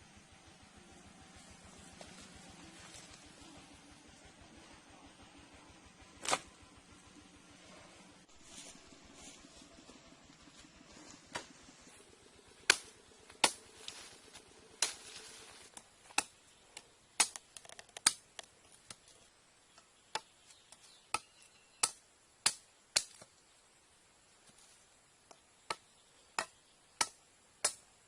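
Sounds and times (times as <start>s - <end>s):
blade chopping wood: 6.2s - 6.5s, 12.6s - 13.6s, 17.2s - 19.0s, 26.4s - 27.8s.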